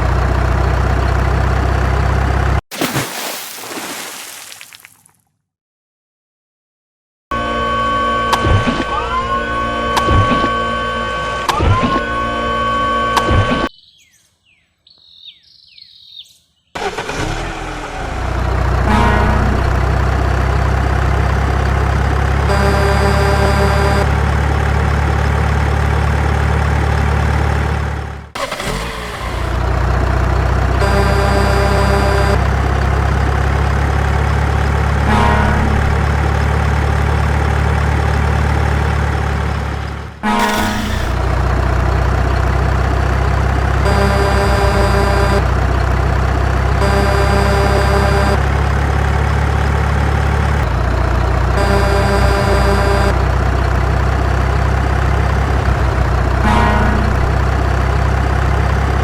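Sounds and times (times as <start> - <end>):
heavy vehicle engine drone: 0.0 - 2.6, 7.4 - 13.3, 16.8 - 59.0
horn-like tones: 18.8 - 19.8, 22.4 - 24.2, 28.4 - 29.7, 30.8 - 32.4, 40.2 - 41.6, 43.8 - 45.5, 46.8 - 48.5, 51.5 - 53.3, 56.4 - 57.3.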